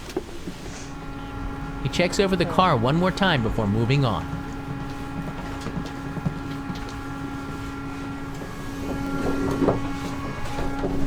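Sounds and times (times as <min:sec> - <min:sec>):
train car electrical hum: 0:00.0 - 0:11.0.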